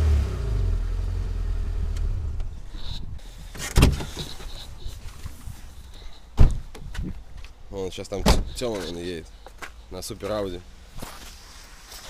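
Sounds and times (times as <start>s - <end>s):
car engine low rumble: 0.0s - 3.6s.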